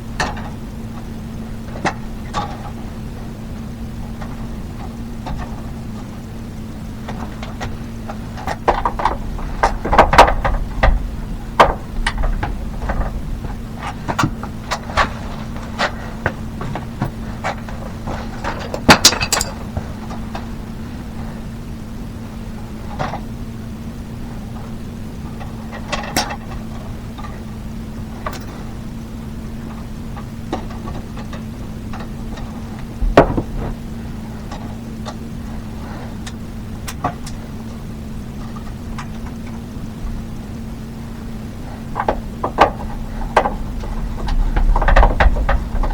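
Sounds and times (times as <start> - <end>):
low hum: 0.0 - 25.7, 26.4 - 45.9
tools knocking and clattering: 7.1 - 20.4, 28.2 - 28.6, 30.5 - 33.8, 41.8 - 45.9
hard objects clicking and knocking: 18.4 - 19.6, 42.0 - 45.9
thump: 33.0 - 33.8.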